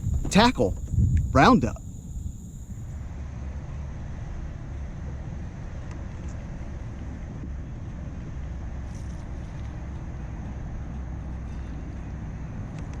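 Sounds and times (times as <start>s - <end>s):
wind buffeting microphone: 0.0s - 3.1s.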